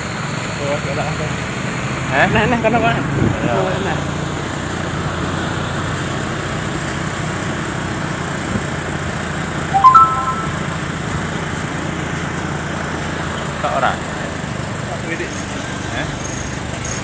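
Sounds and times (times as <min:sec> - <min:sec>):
rising three-note tone: 0:09.8 - 0:10.8.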